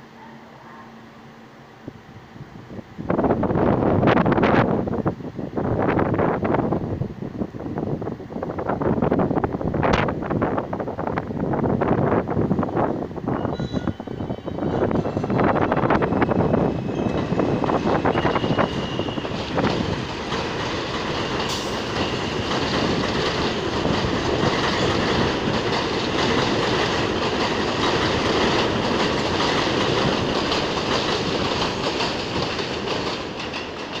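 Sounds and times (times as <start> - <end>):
high wheel squeal: 13.3 - 19.7
train wheels clattering over rails: 15.0 - 34.0.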